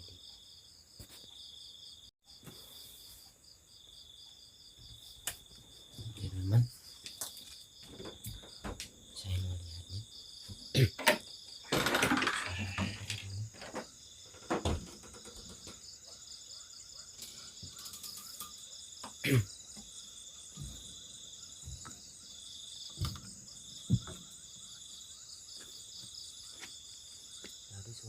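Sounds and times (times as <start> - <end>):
insect chorus shrill trill: 6.0 - 28.0
knocks and thumps: 7.8 - 9.0, 10.4 - 16.2, 19.0 - 22.2, 22.8 - 24.4.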